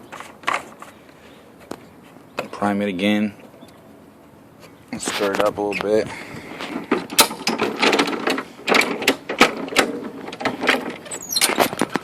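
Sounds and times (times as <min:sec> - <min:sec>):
lawn mower rattling: 0:05.0 - 0:12.0.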